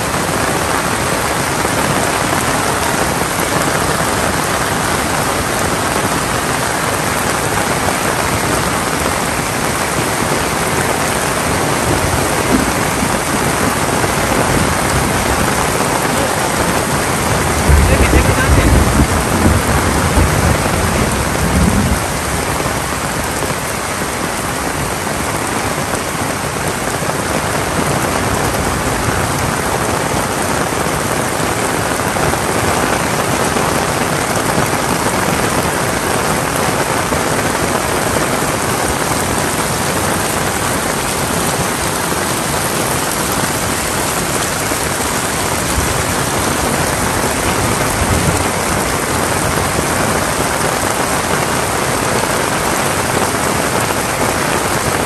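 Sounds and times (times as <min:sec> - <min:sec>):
heavy rain falling: 0:00.0 - 0:55.0
low rumble: 0:17.3 - 0:22.3.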